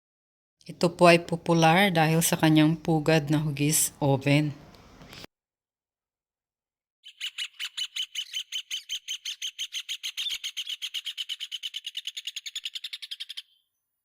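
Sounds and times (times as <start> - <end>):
bird singing ringing notes: 7.0 - 13.7.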